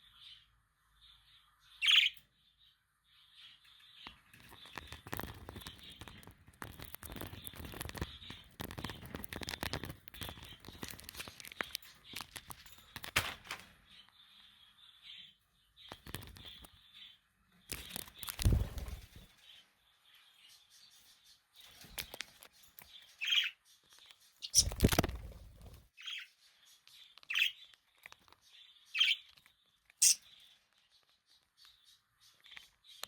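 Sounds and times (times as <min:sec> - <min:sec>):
budgies chirping: 0:00.0 - 0:13.1, 0:13.8 - 0:33.0
rustling and clicking: 0:04.0 - 0:14.1, 0:21.7 - 0:23.0.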